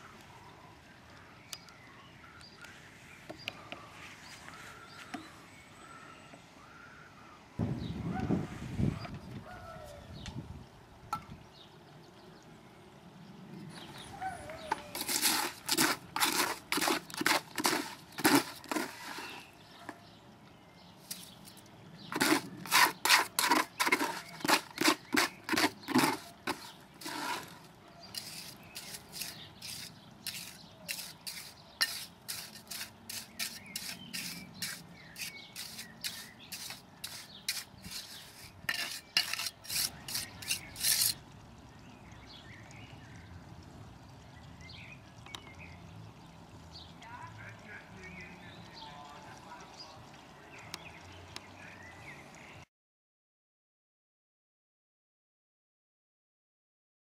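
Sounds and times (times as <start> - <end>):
mortar scraping on concrete: 14.6 - 20.0, 21.0 - 41.2.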